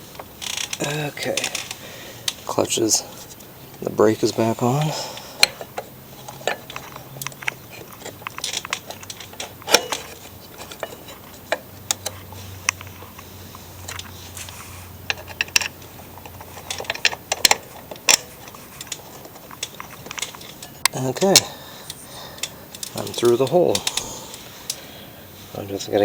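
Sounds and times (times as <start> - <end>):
metallic clicks and knocks: 5.4 - 13.2, 13.8 - 24.8.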